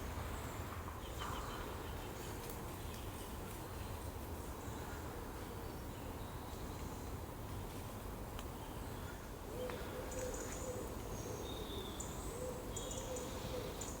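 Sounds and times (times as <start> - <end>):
bird cooing: 12.4 - 13.8.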